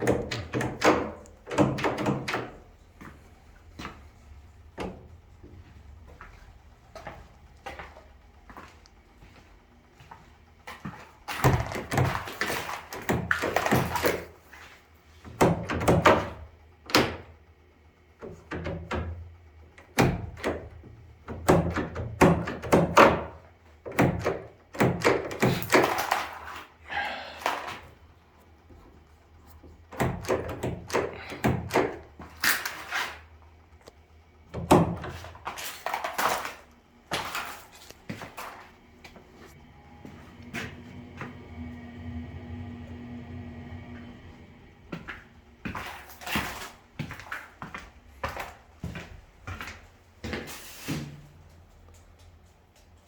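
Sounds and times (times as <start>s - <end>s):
door hardware thunks and knocks: 0.0s - 2.6s.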